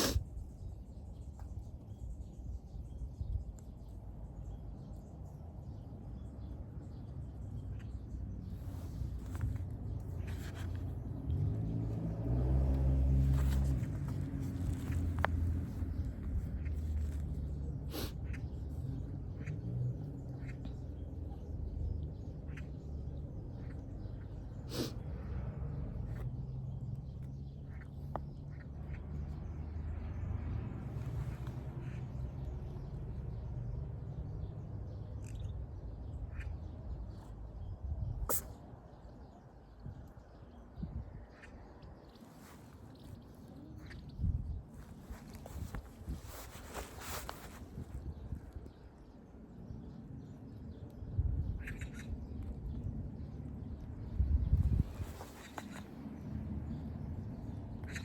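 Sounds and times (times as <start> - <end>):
vehicle engine running: 8.5 - 20.6
faint bird chirps: 35.0 - 49.2
steady low rumble: 42.9 - 58.0.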